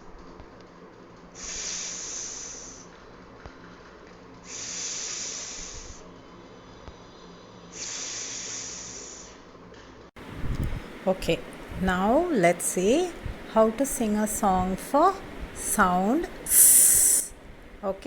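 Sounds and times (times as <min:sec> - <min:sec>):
woman making hissing s sound: 0:01.4 - 0:02.8, 0:04.5 - 0:06.0, 0:07.7 - 0:09.4, 0:16.5 - 0:17.3.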